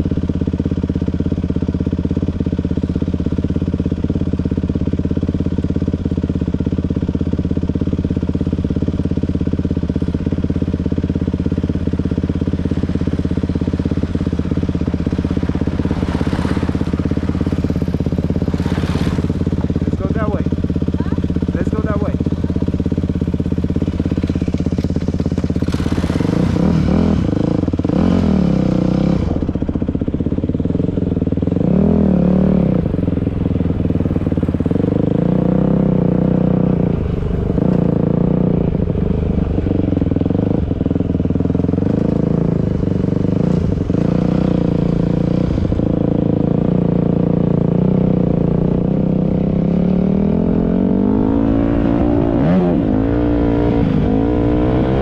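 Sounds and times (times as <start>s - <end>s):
dirt bike engine revving: 10.2s - 29.7s, 30.6s - 55.0s.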